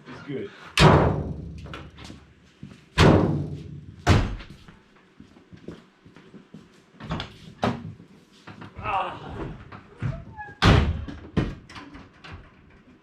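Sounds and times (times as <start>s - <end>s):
heavy metal slams: 0.8s - 1.7s.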